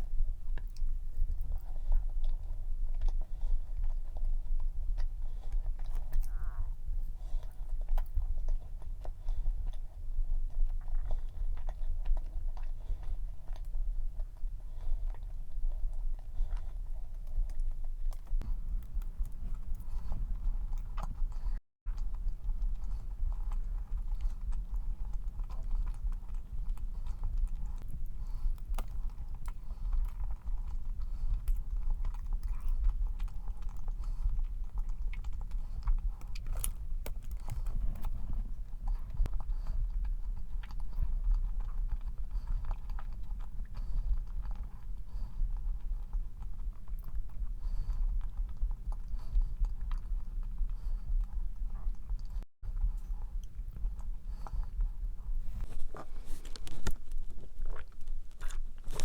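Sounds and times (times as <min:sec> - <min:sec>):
chewing cookie: 0:00.0 - 0:59.0
small mouth clicks: 0:05.0 - 0:08.2.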